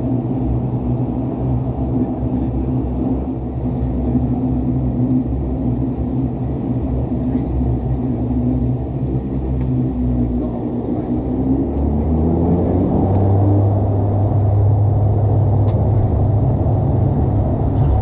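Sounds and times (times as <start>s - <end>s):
turboprop engines droning: 0.0s - 18.0s
high whine rising in pitch: 9.8s - 18.0s.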